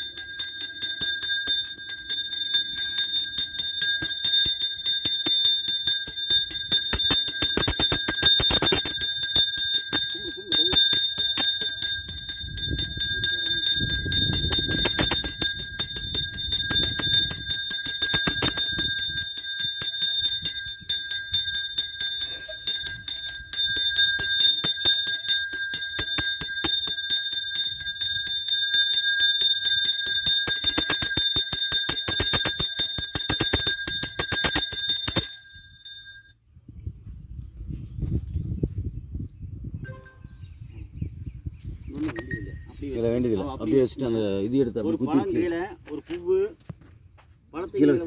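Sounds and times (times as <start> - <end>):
bell rung rapidly: 0.0 - 36.4.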